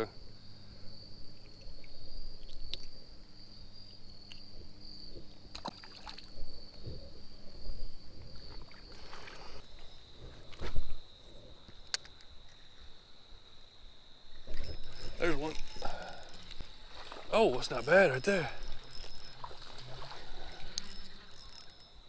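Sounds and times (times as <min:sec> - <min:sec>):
creek water splashing: 0:05.5 - 0:06.4, 0:08.4 - 0:09.6, 0:14.5 - 0:21.8
high-pitched insect drone: 0:14.1 - 0:22.0.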